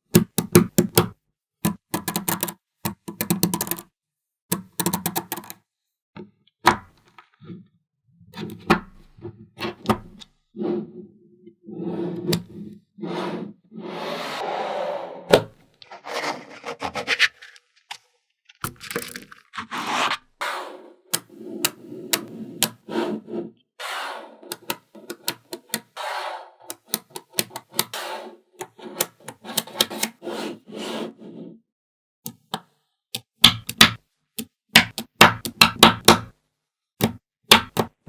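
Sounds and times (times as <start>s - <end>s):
magnetic balls scraping and rolling: 10.6s - 18.0s, 18.6s - 26.9s.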